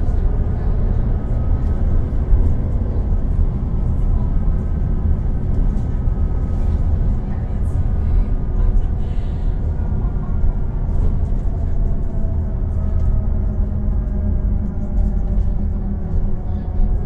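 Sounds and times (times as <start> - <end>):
bus diesel engine rumble: 0.0 - 17.0.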